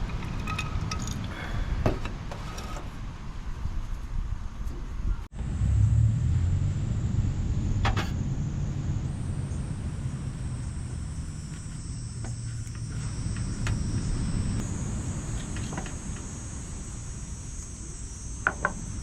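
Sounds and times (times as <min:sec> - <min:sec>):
insects chirring: 0:00.0 - 0:02.2, 0:06.9 - 0:19.0
low rumble: 0:05.1 - 0:18.0.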